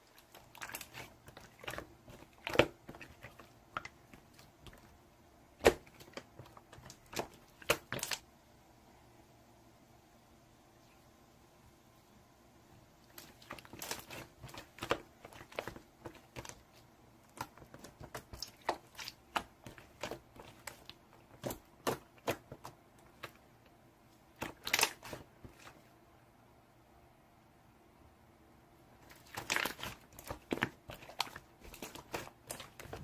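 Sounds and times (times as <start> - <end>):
crinkling and clicking: 29.0 - 33.0.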